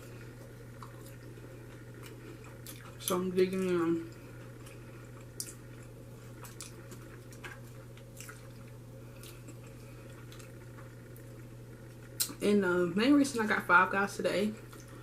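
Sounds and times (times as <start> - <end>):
person chewing food: 0.0 - 12.3
steady low hum: 0.0 - 15.0.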